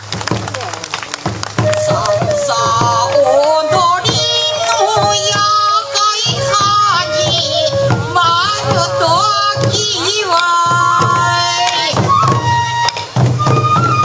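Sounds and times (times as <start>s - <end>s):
taiko drum beats: 0.0s - 14.0s
person singing: 1.7s - 12.2s.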